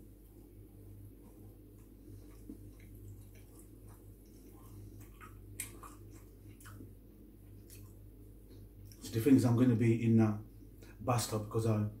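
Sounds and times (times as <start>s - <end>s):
soft chewing: 0.0s - 9.1s
steady low hum: 0.0s - 12.0s
wet mouth clicks and smacks: 1.7s - 9.0s.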